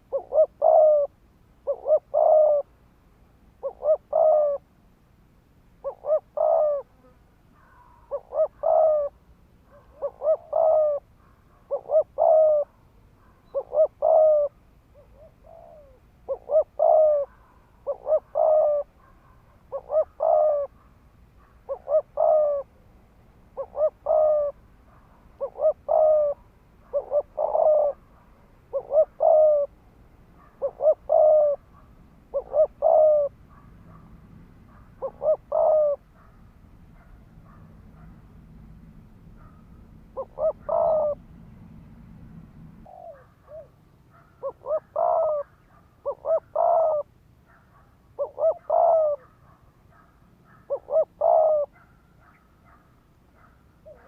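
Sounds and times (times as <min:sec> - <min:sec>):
dove cooing rapidly: 0:00.0 - 0:02.8, 0:03.6 - 0:04.7, 0:05.8 - 0:29.8, 0:30.4 - 0:34.1, 0:34.7 - 0:36.4, 0:39.4 - 0:41.4, 0:42.7 - 0:52.8, 0:53.4 - 0:54.0.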